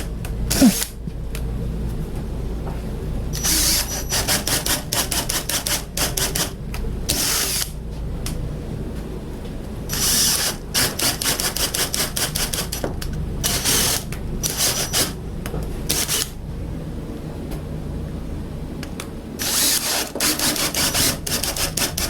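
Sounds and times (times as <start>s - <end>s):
drill motor hum: 0.5s - 0.9s, 3.4s - 4.6s, 19.4s - 22.0s
power drill boring: 3.4s - 4.3s, 19.4s - 21.8s.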